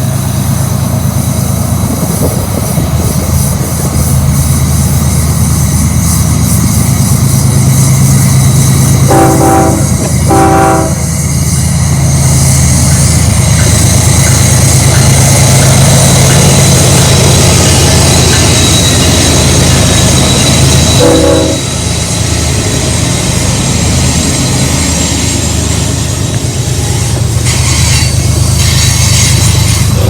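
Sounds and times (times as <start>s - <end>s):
diesel locomotives droning: 0.0s - 30.0s
locomotive horn blasts: 9.0s - 11.2s, 21.0s - 21.8s.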